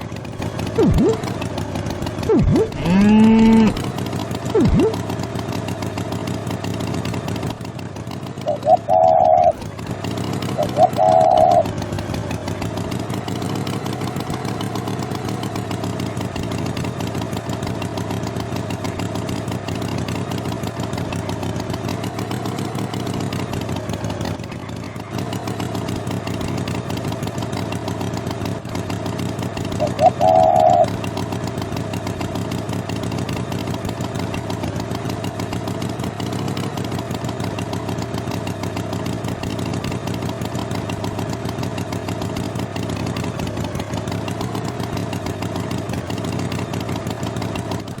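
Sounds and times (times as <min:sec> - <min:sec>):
cartoon tractor engine running: 0:00.0 - 0:48.0.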